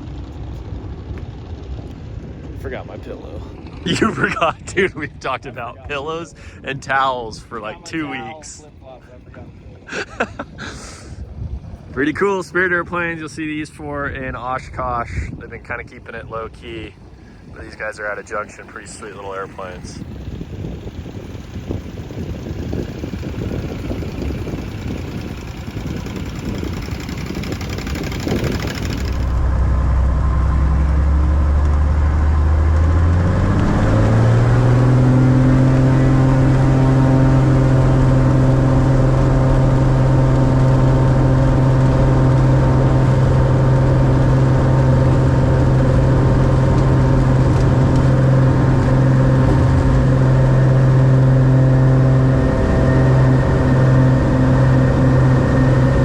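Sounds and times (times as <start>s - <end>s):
wind noise: 0.0s - 56.0s
light airplane piston engine: 15.4s - 30.5s.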